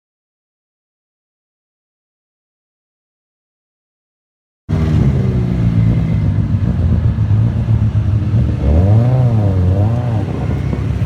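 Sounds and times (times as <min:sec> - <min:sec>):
car engine revving: 0:04.7 - 0:11.0.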